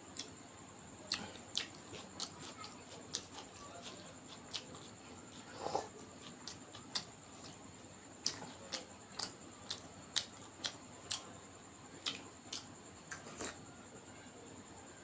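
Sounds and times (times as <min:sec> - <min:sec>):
wet mouth smacks while chewing: 0:08.2 - 0:11.2, 0:12.0 - 0:13.6.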